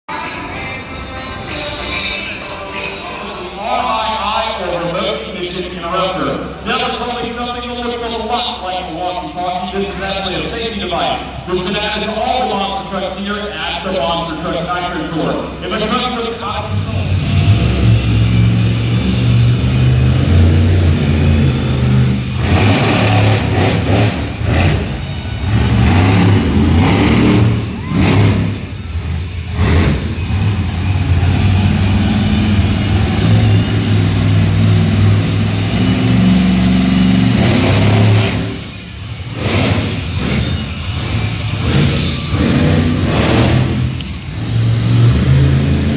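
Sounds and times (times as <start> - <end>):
monster truck engine revving: 4.4 - 45.9.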